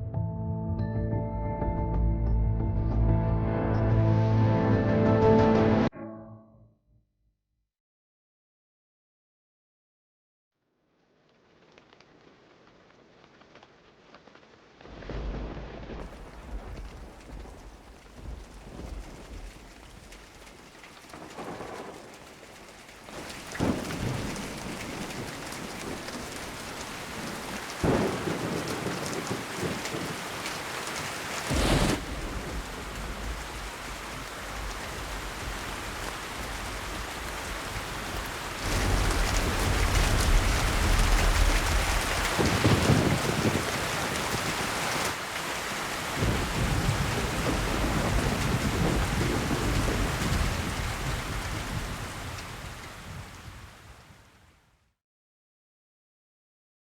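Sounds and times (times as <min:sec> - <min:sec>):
heavy rain: 0:11.7 - 0:54.5
thunderclaps: 0:14.8 - 0:45.2, 0:46.0 - 0:53.9
rolling thunder rumble: 0:14.9 - 0:45.1, 0:46.1 - 0:53.6.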